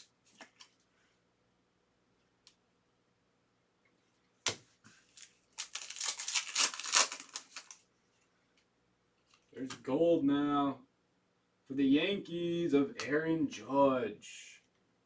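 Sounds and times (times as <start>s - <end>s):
foil wrapper crinkling: 5.1s - 7.8s
wrapper snap: 5.2s - 7.8s.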